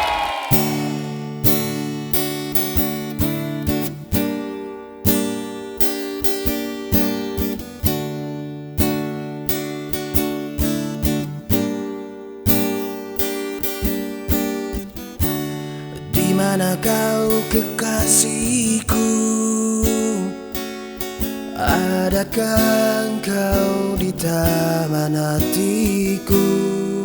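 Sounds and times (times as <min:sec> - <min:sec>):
acoustic guitar strumming: 0:00.5 - 0:27.0.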